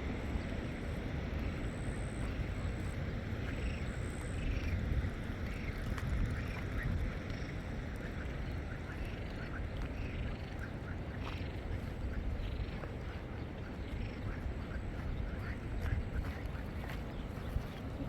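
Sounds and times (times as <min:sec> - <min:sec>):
wind on microphone: 0:00.0 - 0:18.0.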